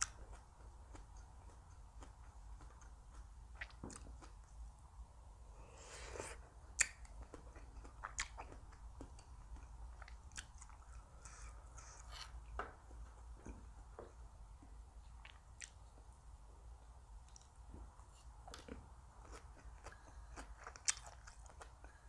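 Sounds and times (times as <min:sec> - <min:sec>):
person chewing and biting food: 0:00.0 - 0:04.4, 0:06.0 - 0:12.6, 0:15.1 - 0:15.9, 0:18.2 - 0:22.0.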